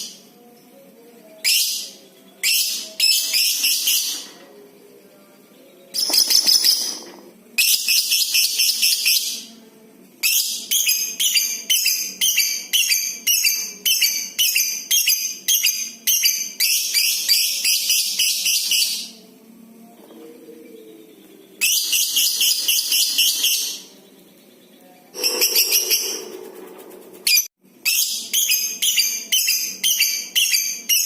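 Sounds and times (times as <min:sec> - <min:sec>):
lovebird chattering calls: 0:25.2 - 0:26.4
bird quick repeated chirps: 0:25.2 - 0:26.5
bird long chattering trill: 0:25.2 - 0:27.5.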